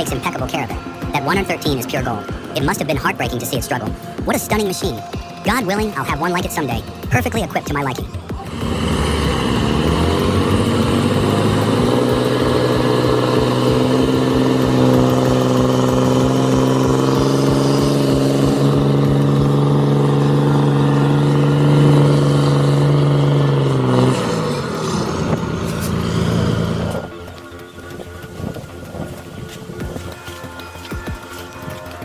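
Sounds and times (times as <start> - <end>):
heavy vehicle engine revving: 6.0 - 30.2.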